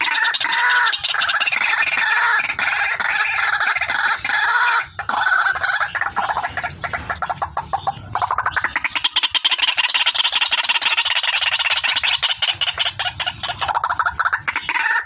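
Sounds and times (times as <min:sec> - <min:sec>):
waterhen calling harsh repeated notes: 0:00.0 - 0:15.0.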